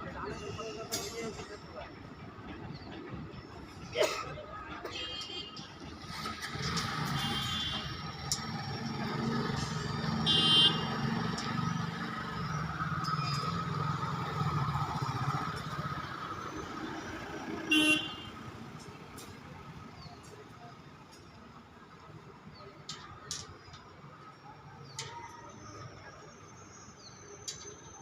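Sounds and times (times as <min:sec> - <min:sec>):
low rumble of traffic: 0:00.0 - 0:28.0
high-pitched vehicle horn honks: 0:07.1 - 0:07.9, 0:10.3 - 0:10.9, 0:17.7 - 0:18.3.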